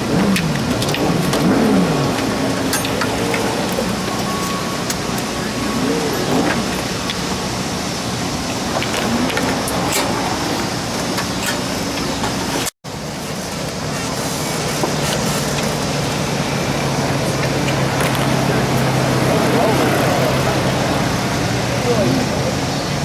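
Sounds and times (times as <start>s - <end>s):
race car engines: 0.0s - 23.0s.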